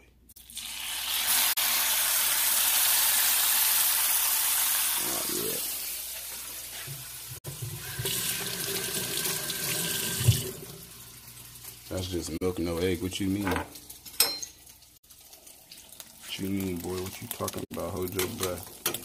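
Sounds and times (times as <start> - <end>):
tap running into a sink: 6.9 - 10.8.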